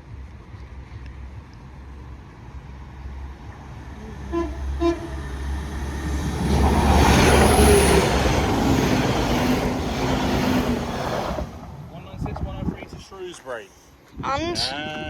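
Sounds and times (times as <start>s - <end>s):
train passing: 0.1s - 13.8s
train horn toots: 4.0s - 8.1s.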